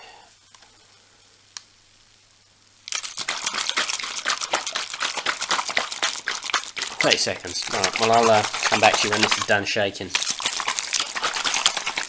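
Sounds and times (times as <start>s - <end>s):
plastic bag crinkling: 2.8s - 12.0s
liquid sloshing: 2.9s - 12.0s.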